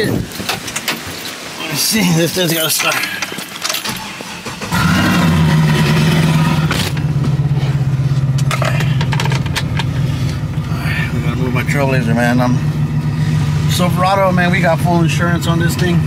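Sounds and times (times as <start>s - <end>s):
car engine cranking and idling: 0.0s - 16.0s.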